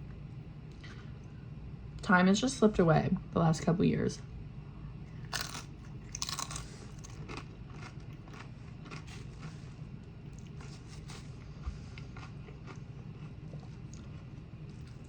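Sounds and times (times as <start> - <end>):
crunching bites of chips: 5.1 - 11.3
crunchy chewing: 5.1 - 15.0.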